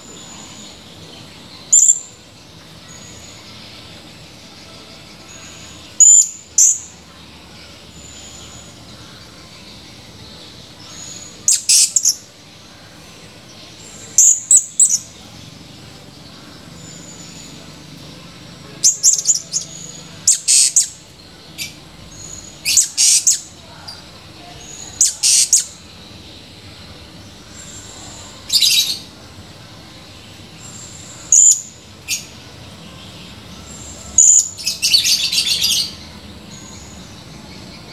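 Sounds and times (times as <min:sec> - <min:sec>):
parrot high-pitched chirps: 0:11.0 - 0:12.2, 0:18.8 - 0:21.0, 0:21.6 - 0:23.5, 0:24.6 - 0:25.8.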